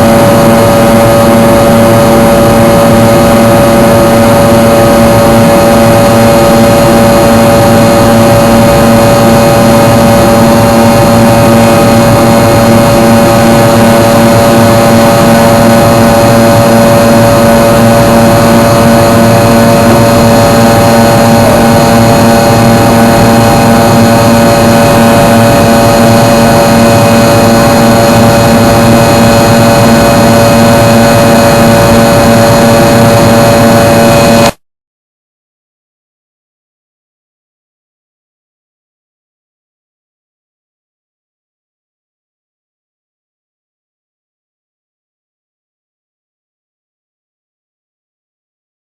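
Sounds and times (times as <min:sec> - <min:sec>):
jet engines running: 0:00.0 - 0:34.6
steady whining tones: 0:00.0 - 0:34.6
loud rush of air: 0:10.5 - 0:34.6.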